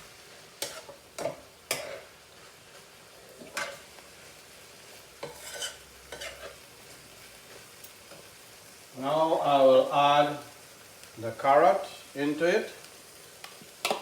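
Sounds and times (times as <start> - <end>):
meat sizzling in a pan: 0.0 - 14.0
utensil scraping and knocking pan: 5.2 - 6.6.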